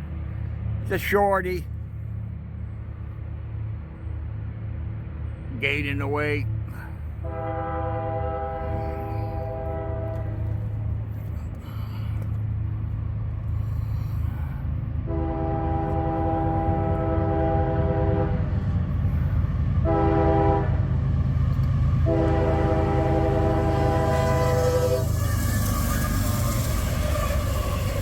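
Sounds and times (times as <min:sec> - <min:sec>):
train rumble: 0:00.0 - 0:28.0
locomotive air horn blasts: 0:06.8 - 0:10.8, 0:15.0 - 0:18.7, 0:19.8 - 0:20.9, 0:22.0 - 0:28.0.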